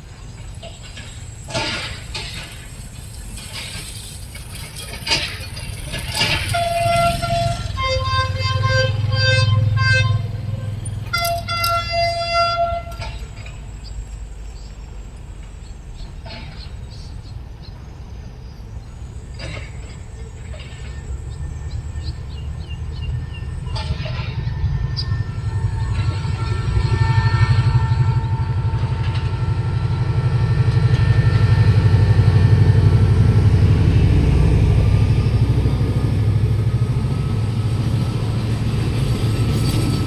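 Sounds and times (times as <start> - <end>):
freight train engine rumble: 0.0 - 40.0
train horn blasts: 6.0 - 13.9, 20.7 - 40.0
short horn toots: 6.2 - 13.4.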